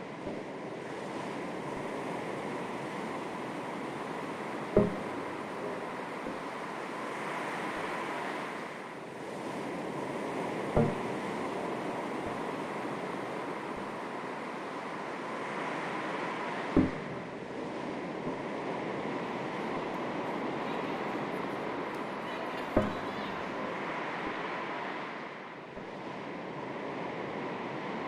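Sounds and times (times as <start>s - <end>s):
sea waves lapping on shore: 0.0s - 28.0s.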